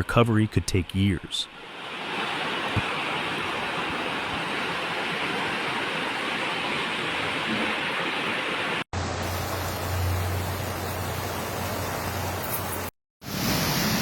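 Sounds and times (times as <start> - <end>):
rushing water: 1.4 - 14.0.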